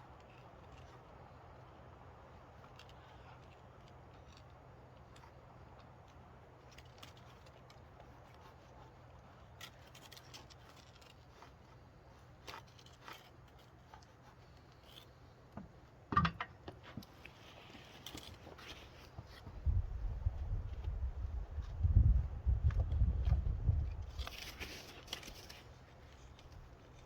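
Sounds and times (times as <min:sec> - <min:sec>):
scratching and light clicks on wood: 0:00.0 - 0:19.6, 0:22.6 - 0:27.0.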